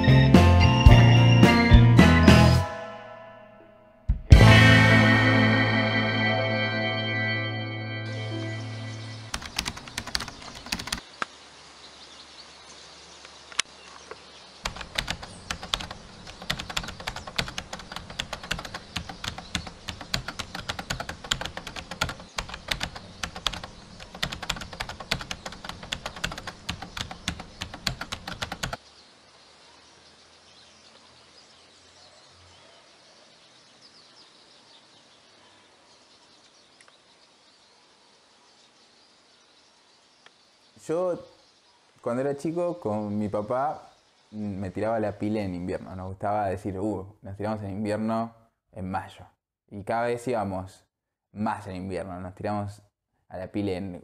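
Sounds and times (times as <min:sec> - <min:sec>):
faint outdoor ambience: 0:02.6 - 0:54.0
rapid keyboard typing: 0:09.3 - 0:11.0, 0:14.6 - 0:28.8.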